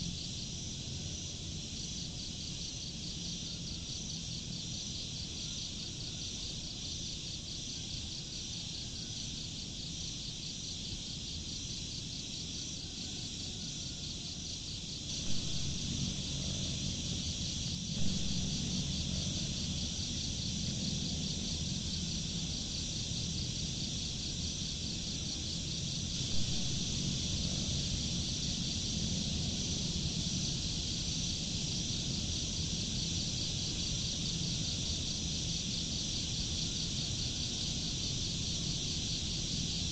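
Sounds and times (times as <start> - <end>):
high-pitched insect chorus: 0.0 - 39.9
low rumbling: 15.1 - 22.7, 26.1 - 30.3.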